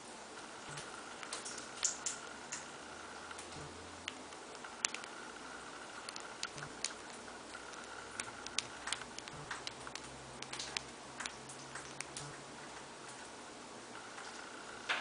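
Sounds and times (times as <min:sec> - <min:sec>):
bird beak cracking pellets: 0:05.9 - 0:13.3.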